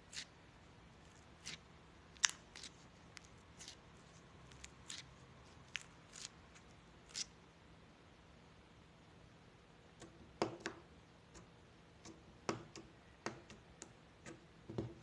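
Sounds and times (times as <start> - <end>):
slime clicking and crackling: 1.1 - 3.8, 4.4 - 7.3.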